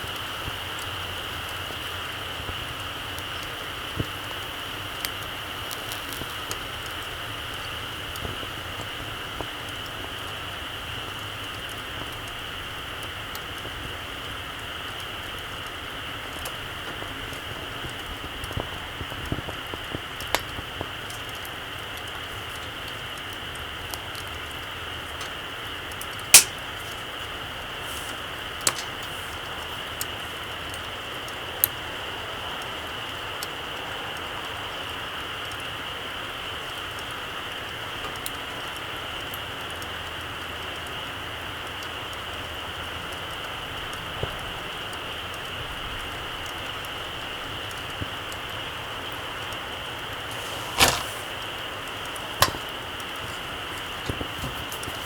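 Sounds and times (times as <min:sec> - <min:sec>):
fire hiss: 0:00.0 - 0:42.6, 0:45.2 - 0:55.0
campfire crackling: 0:00.0 - 0:55.0
wood crackling pops: 0:16.4 - 0:30.8, 0:49.9 - 0:55.0.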